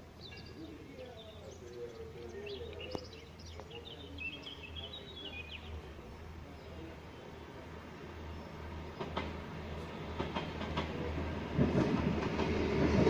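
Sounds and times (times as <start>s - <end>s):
low hum of town noise: 0.0s - 13.0s
small birds chirping: 0.2s - 9.2s.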